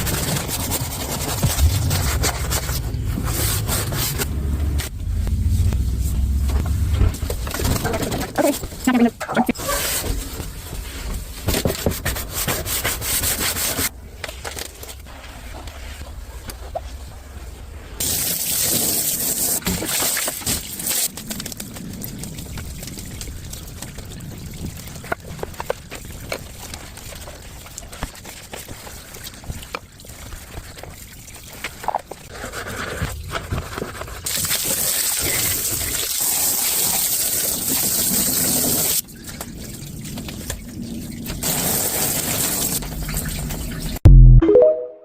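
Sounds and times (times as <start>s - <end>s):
water trickling and splashing: 18.0s - 44.0s.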